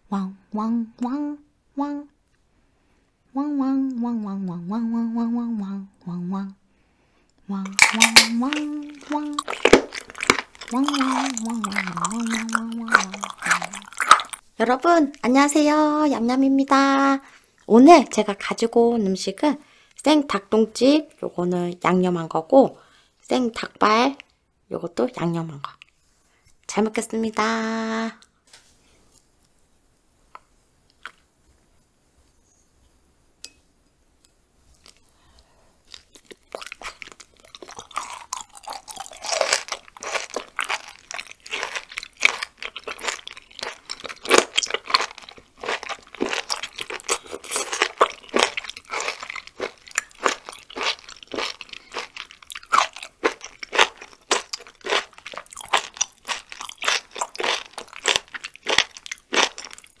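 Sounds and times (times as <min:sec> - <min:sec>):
crunchy chewing: 0:07.7 - 0:14.4, 0:35.8 - 1:00.0.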